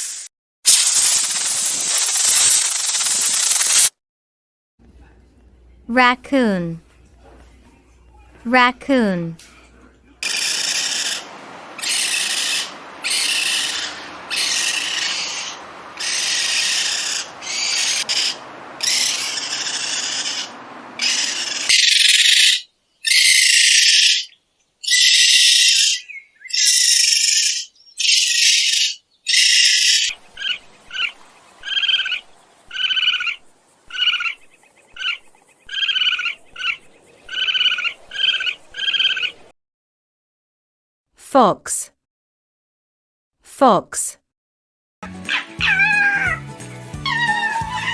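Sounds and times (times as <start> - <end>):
raccoon screeching calls: 10.2 - 34.4, 35.0 - 39.4, 45.3 - 47.9
raccoon chirping calls: 10.2 - 39.4, 45.3 - 46.4, 47.0 - 47.9.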